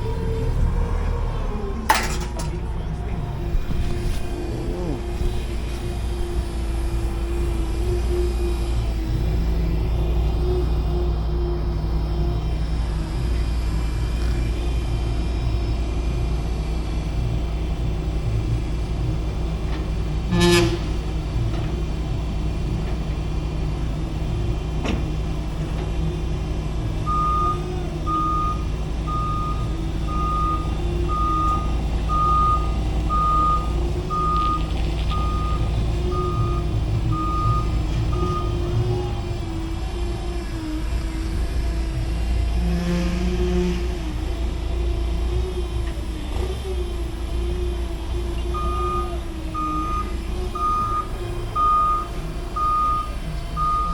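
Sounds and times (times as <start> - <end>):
diesel engine running: 0.0 - 53.9
vehicle backup alarm beeps: 27.0 - 39.8, 48.5 - 53.9.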